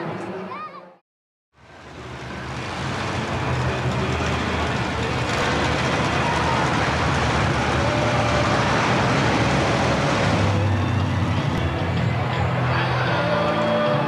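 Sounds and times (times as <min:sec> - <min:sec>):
dense wash of noise: 0:01.6 - 0:12.7
large vehicle engine running: 0:01.6 - 0:14.0.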